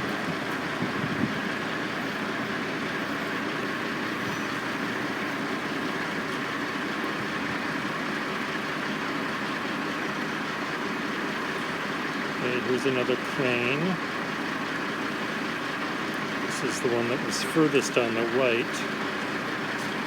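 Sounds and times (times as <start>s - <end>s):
construction machinery droning: 0.0s - 20.0s
diesel engines running: 0.0s - 20.0s.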